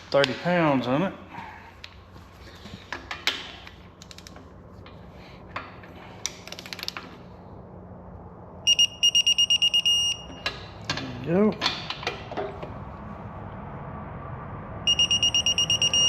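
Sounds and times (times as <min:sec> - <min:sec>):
high electronic beeps: 0:08.7 - 0:10.3, 0:14.9 - 0:16.0.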